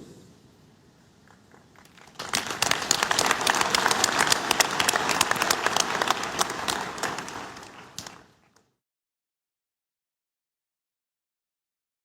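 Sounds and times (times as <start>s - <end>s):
crowd applauding: 1.3s - 8.8s.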